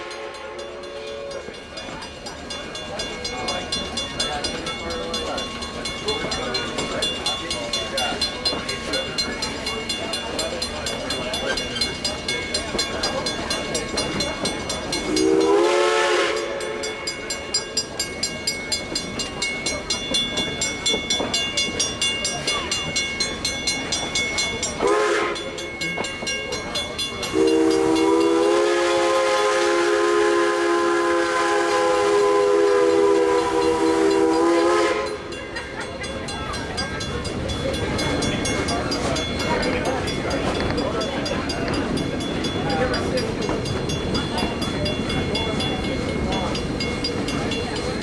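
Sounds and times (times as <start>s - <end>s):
train horn chord blasts: 0.0s - 1.4s, 15.1s - 17.0s, 24.8s - 25.5s, 27.3s - 35.3s
rhythmic train wheel beat: 0.0s - 48.0s.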